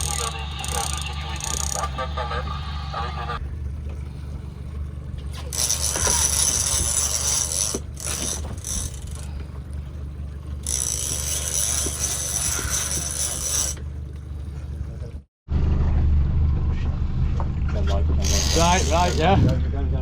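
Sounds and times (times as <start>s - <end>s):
fishing reel ratchet buzzing: 0.0s - 1.9s, 5.5s - 9.3s, 10.6s - 13.8s, 18.2s - 19.4s
boat engine hum: 0.0s - 20.0s.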